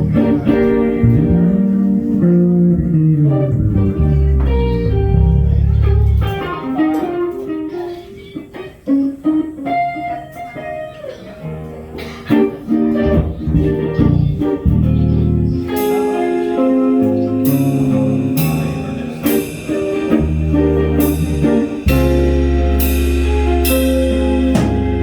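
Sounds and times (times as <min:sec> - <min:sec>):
low bass line: 0:00.0 - 0:06.5, 0:13.0 - 0:25.0
plucked blues guitar: 0:00.0 - 0:25.0.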